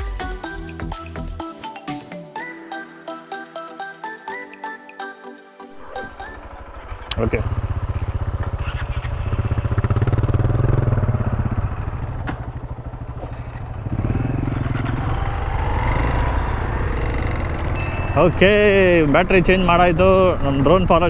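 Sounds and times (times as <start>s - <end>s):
motorcycle engine running: 5.9s - 21.0s.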